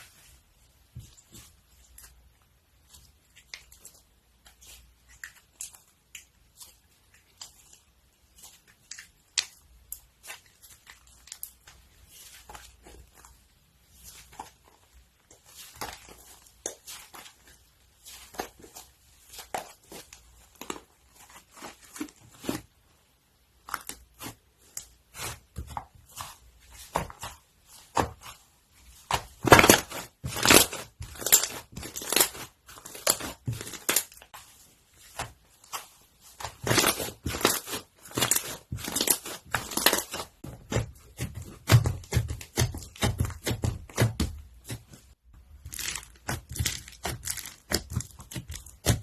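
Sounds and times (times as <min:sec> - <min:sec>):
crunchy slime crackling and popping: 0:36.2 - 0:44.8, 0:45.5 - 0:49.0.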